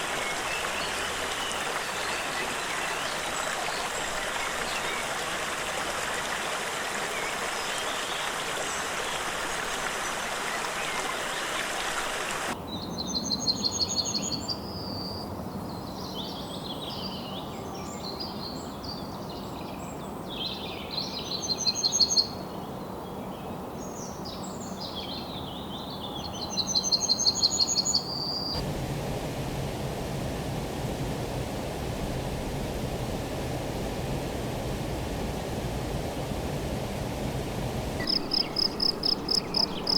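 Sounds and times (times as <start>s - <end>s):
rushing water hiss: 0.0s - 12.6s, 26.6s - 39.9s
birds calling: 26.9s - 39.9s.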